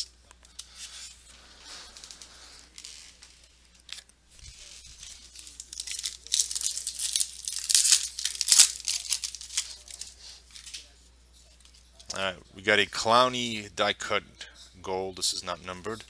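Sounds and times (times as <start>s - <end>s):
foil wrapper tearing and crinkling: 1.8s - 10.8s.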